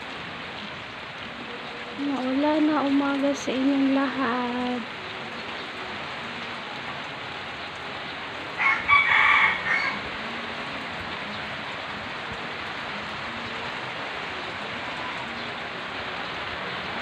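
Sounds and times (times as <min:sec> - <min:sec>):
heavy rain: 0:00.0 - 0:17.0
rooster crowing: 0:08.6 - 0:10.1.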